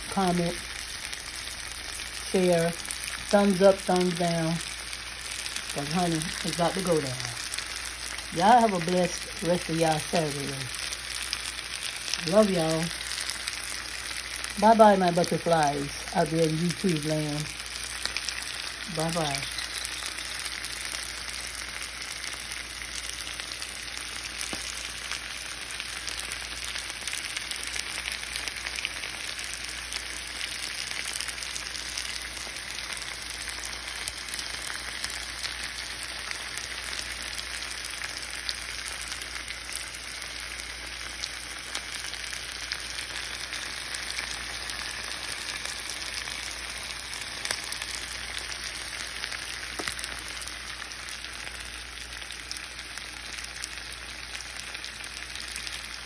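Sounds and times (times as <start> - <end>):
chicken sizzling in a skillet: 0.0 - 56.0.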